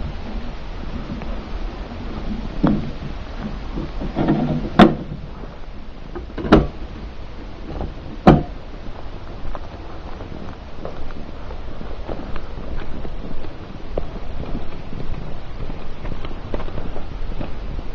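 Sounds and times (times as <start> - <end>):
car interior rumble: 0.0 - 17.9
sharp knocks: 8.2 - 8.6.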